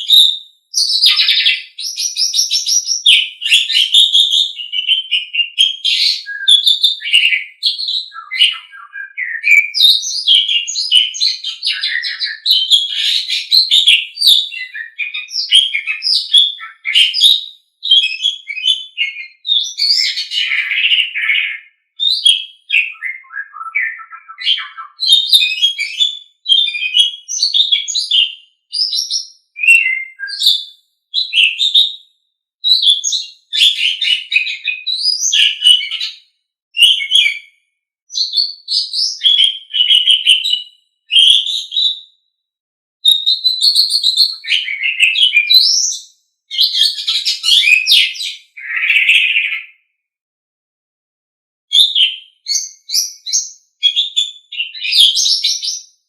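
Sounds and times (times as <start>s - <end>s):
starling singing: 0.0s - 28.2s, 38.3s - 41.9s.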